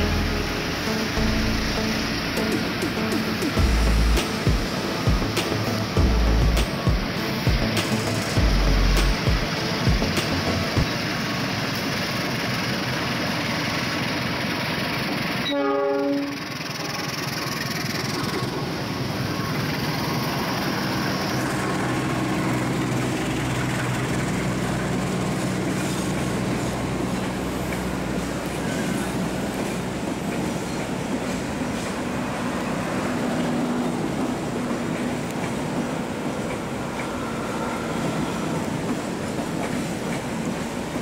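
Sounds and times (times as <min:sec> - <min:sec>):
train coaches rumbling and clattering: 0:00.0 - 0:41.0
train horn blast: 0:15.4 - 0:16.5.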